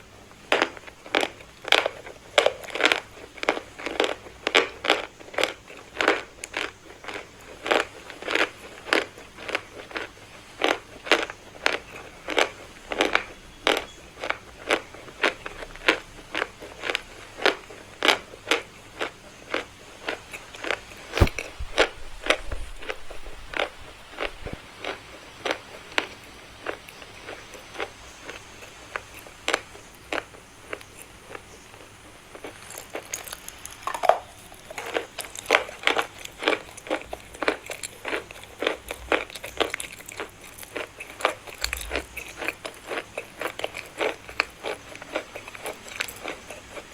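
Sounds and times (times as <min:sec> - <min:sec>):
chalk crunching being chewed: 0:00.5 - 0:46.9.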